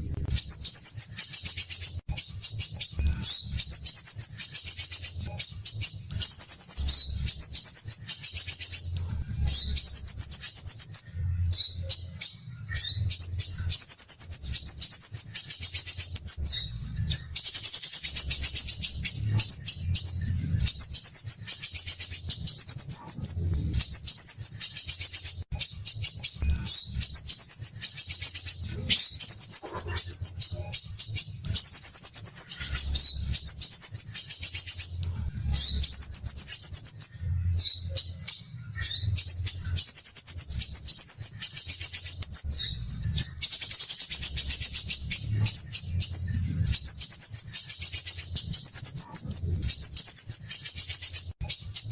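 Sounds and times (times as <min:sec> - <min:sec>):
sunbird singing rapid trills: 0:00.4 - 0:51.9.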